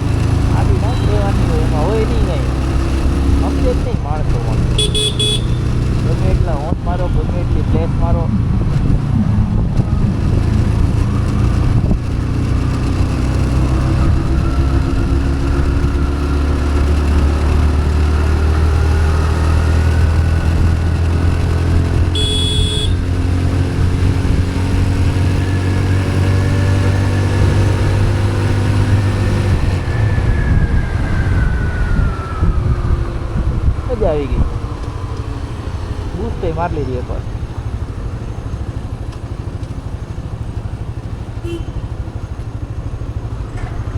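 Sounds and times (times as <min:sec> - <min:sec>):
motorcycle engine accelerating: 0:00.0 - 0:43.9
wind rumble on microphone: 0:06.3 - 0:22.2, 0:23.4 - 0:38.8
short high beep: 0:22.2 - 0:23.0.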